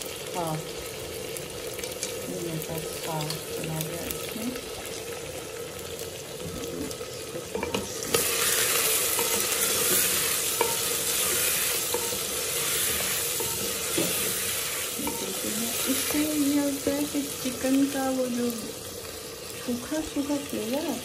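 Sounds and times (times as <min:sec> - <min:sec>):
chicken sizzling in hot oil: 0:00.0 - 0:21.0
wooden spoon stirring: 0:06.5 - 0:16.7.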